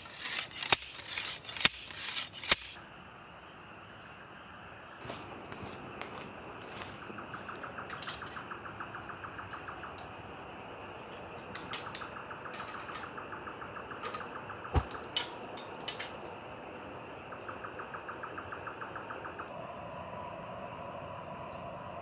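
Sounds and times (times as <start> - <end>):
scattered clicks and knocks: 0.0 - 2.8, 11.1 - 16.4
bird song of rapid notes: 6.8 - 19.5
sharp knock with thud: 14.7 - 14.9.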